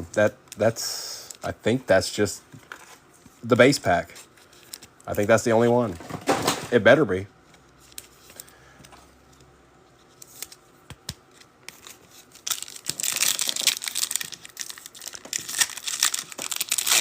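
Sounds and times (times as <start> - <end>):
wrapper tearing and crinkling: 11.7 - 17.0.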